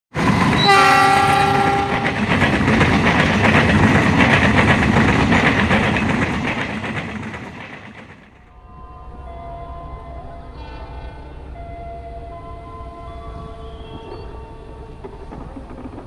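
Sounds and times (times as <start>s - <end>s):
train wheels clattering on rails: 0.1s - 8.5s, 13.3s - 16.0s
train horn blast: 0.6s - 2.2s.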